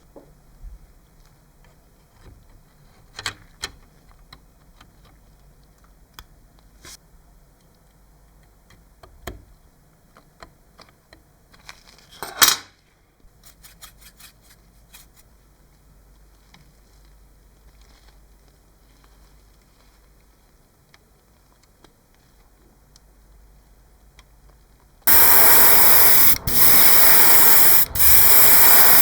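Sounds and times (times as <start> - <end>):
loud noisy burst: 25.1 - 29.0.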